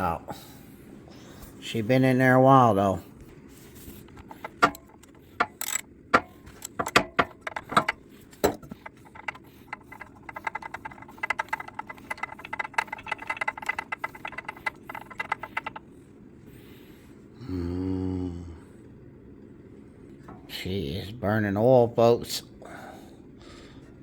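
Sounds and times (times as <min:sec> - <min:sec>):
metal clicks and knocks: 0:04.2 - 0:15.9
rapid ratchet clicking: 0:04.2 - 0:15.9.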